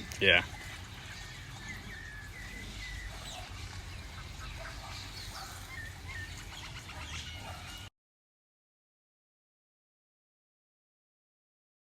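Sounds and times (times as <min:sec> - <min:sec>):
birds chirping and calling: 0:00.0 - 0:07.9.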